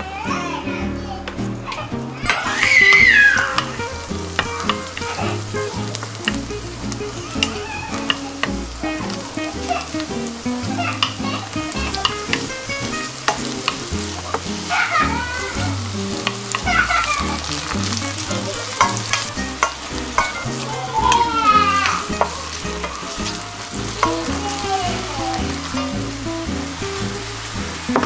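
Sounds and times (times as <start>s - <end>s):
mushrooms sizzling in oil: 1.3s - 28.0s
wooden spatula scraping pan: 2.2s - 26.1s
high-pitched background voices: 20.2s - 26.1s.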